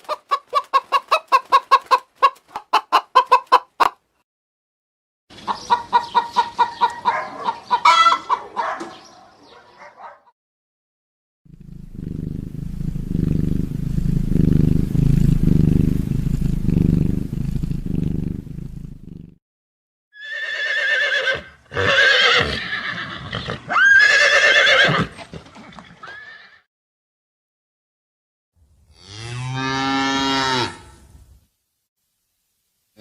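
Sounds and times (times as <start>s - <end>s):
low pulsing rumble: 11.5s - 19.1s
horse neighing: 20.2s - 25.2s, 26.0s - 26.6s.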